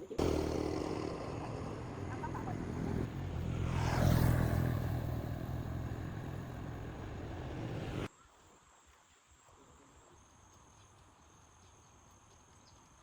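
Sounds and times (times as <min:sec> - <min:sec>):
motor vehicle passing by: 0:00.0 - 0:08.1.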